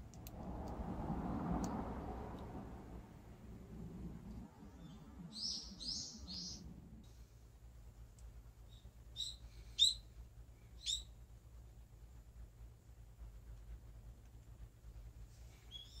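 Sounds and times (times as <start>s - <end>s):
faint low background rumble: 0.0s - 16.0s
bird chirping: 4.5s - 6.8s, 8.6s - 11.2s, 15.5s - 16.0s.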